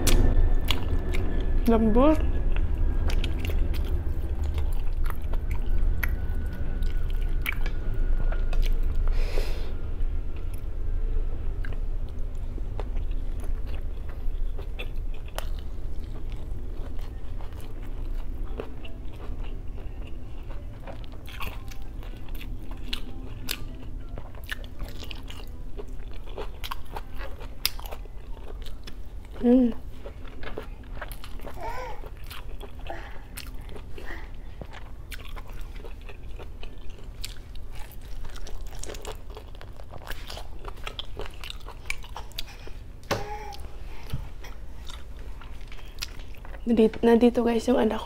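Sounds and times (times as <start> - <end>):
low steady hum: 0.0 - 48.0
close chewing with mouth clicks: 11.6 - 46.7.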